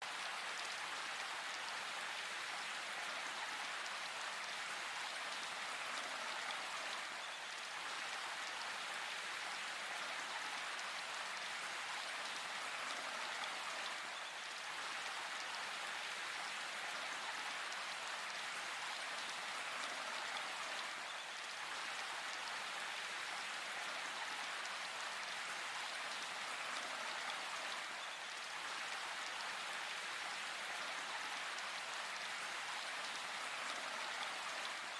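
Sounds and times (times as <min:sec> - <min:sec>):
rain falling in forest: 0:00.0 - 0:34.9.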